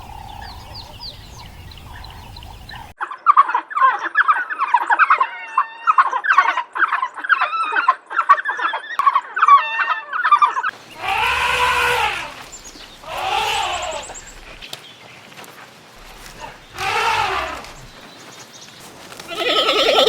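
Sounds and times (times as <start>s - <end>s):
poultry chattering: 10.8s - 14.7s, 16.0s - 20.0s
long bleats: 10.9s - 14.6s, 16.0s - 18.0s, 19.3s - 20.0s.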